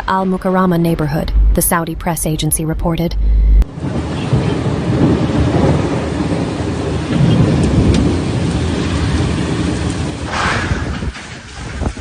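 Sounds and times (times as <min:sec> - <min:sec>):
thunder rumbling: 0:00.0 - 0:12.0
heavy rain: 0:03.7 - 0:12.0.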